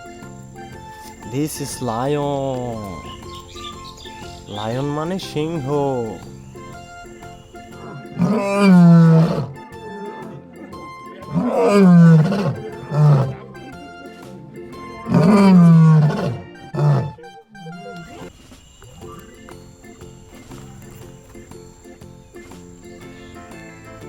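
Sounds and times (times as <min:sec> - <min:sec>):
lion grunt: 0:07.7 - 0:09.6, 0:11.2 - 0:13.5, 0:14.8 - 0:17.2
lion roaring: 0:07.8 - 0:09.6, 0:11.3 - 0:13.4, 0:14.9 - 0:17.2.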